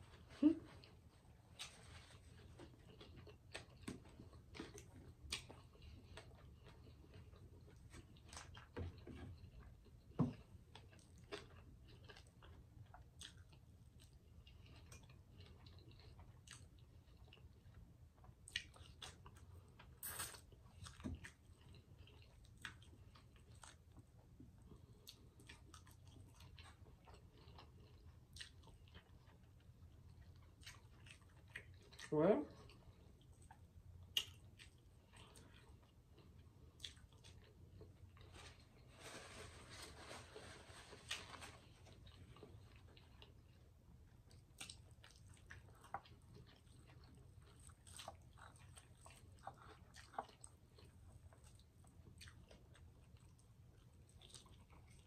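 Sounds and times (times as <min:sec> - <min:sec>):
person chewing food: 0:00.0 - 0:55.0
wet mouth clicks and smacks: 0:34.1 - 0:34.8.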